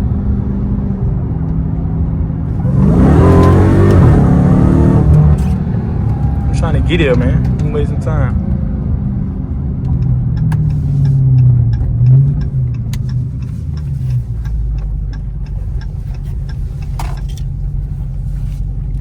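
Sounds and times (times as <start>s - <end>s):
car engine low drone: 0.0s - 19.0s.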